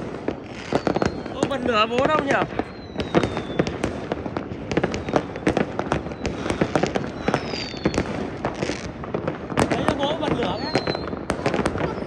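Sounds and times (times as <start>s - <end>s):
fireworks bangs and crackles: 0.0s - 12.0s
falling whistle: 2.6s - 3.7s, 7.0s - 8.1s, 10.6s - 11.1s.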